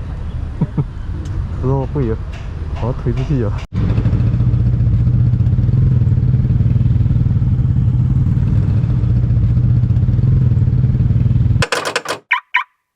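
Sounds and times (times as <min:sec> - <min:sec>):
clicks: 0:11.6 - 0:12.7.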